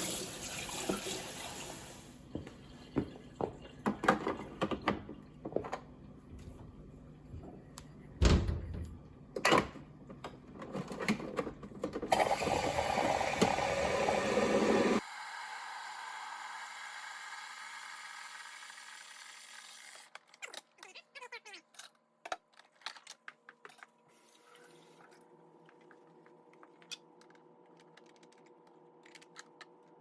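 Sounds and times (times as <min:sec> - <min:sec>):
plastic parts clicking and knocking: 0:21.7 - 0:23.9.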